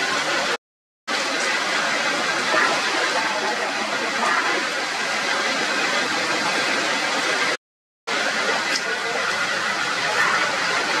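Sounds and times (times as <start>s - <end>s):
heavy rain on foliage: 0.0s - 11.0s.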